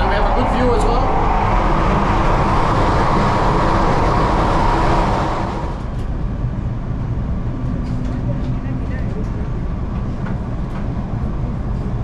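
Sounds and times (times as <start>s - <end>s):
train rumble inside carriage: 0.0s - 12.0s.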